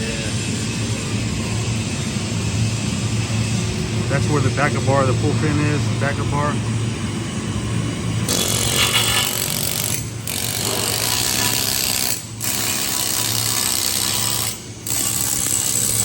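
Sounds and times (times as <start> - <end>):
arc welding crackling hiss: 8.3 - 9.8.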